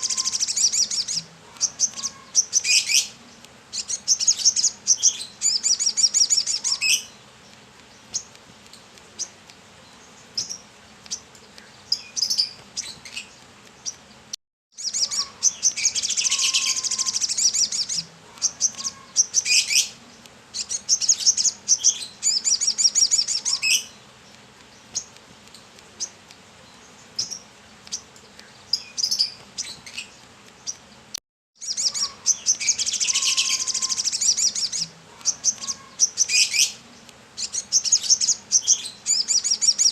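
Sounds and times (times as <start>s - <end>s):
single bird chirps: 0.0s - 3.2s, 14.8s - 20.0s, 31.6s - 36.8s
bird twittering song: 0.0s - 39.9s.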